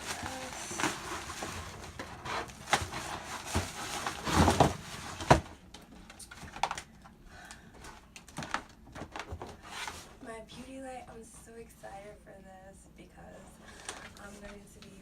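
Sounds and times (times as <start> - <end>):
box clicks and rustles: 0.0 - 5.5.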